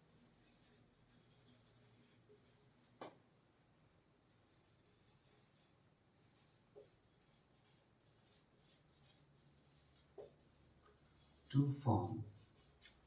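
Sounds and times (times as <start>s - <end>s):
soft taps: 3.0s - 3.2s
pen scratching handwriting: 12.3s - 13.0s.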